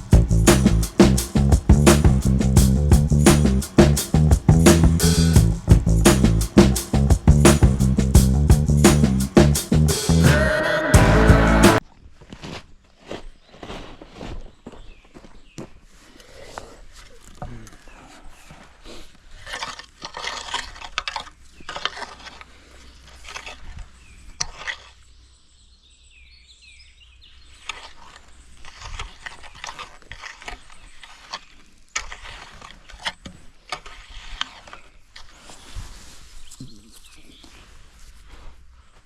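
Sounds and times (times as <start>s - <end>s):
hands scraping sand: 0.0s - 11.8s, 27.6s - 39.0s
footsteps crunching in gravel: 11.8s - 17.2s.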